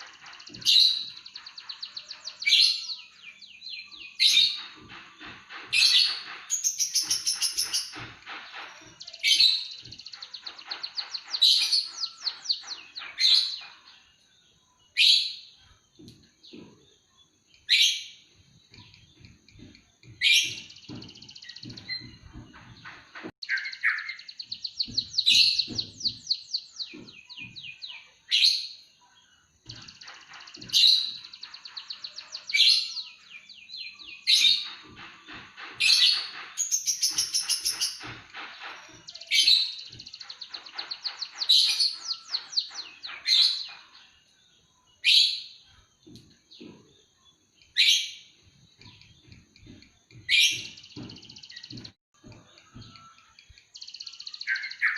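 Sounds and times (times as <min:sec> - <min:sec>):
songbird chirping and trilling: 0:00.0 - 0:54.9.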